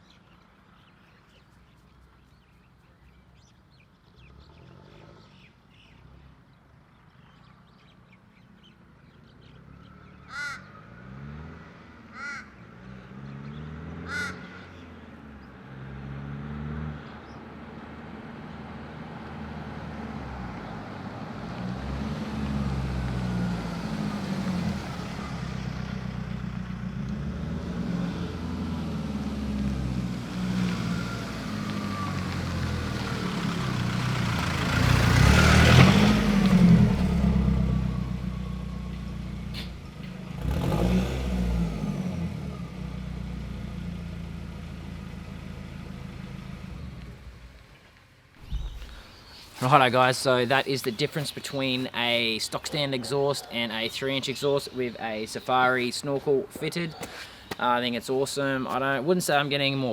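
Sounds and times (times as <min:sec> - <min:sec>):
crow cawing: 0:10.2 - 0:11.2, 0:12.1 - 0:12.7, 0:14.0 - 0:14.9
diesel engine revving: 0:10.8 - 0:47.8, 0:48.4 - 0:53.1.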